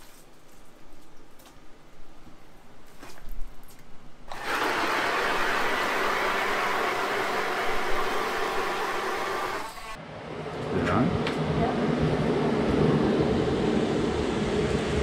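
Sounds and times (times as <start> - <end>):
electric ice auger drilling: 4.3 - 10.0.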